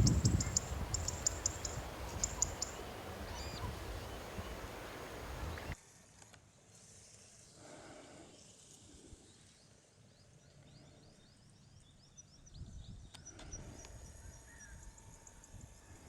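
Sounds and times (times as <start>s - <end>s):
high-pitched bird chirps: 0.0s - 3.7s.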